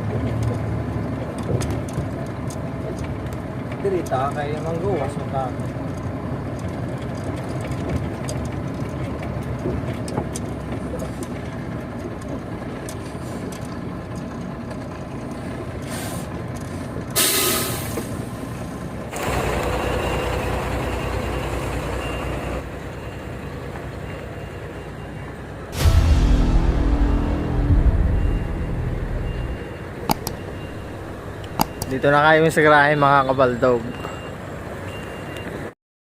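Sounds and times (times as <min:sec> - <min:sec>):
air brake hiss: 0:15.8 - 0:16.3, 0:17.2 - 0:18.3
truck diesel engine running: 0:18.1 - 0:24.0, 0:25.5 - 0:32.2.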